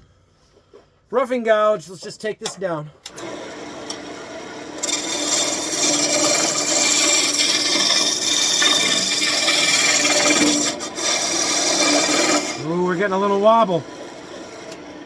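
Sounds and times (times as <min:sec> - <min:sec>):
gouge scraping wood on a lathe: 0:03.9 - 0:15.0.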